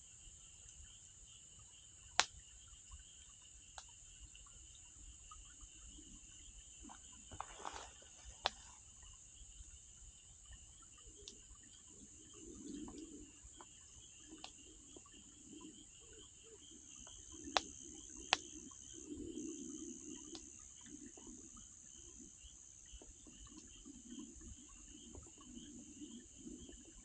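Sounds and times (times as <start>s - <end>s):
crickets chirring: 0.0s - 27.0s
campfire crackling and popping: 17.0s - 18.6s.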